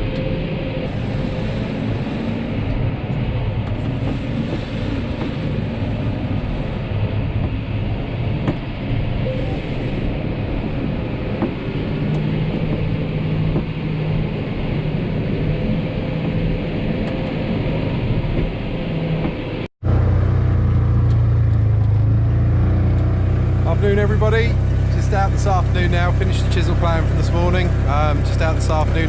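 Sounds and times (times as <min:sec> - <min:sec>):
tractor engine running under load: 0:19.8 - 0:29.0.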